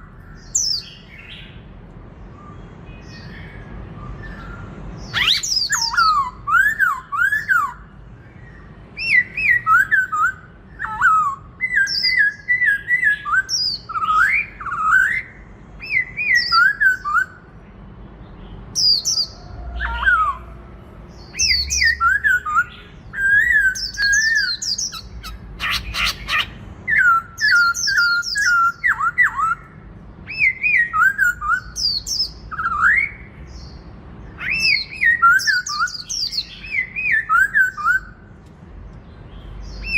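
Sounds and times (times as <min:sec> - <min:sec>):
bird singing whistled phrases: 0:02.3 - 0:07.8, 0:09.0 - 0:17.4, 0:21.2 - 0:33.7, 0:34.4 - 0:38.2.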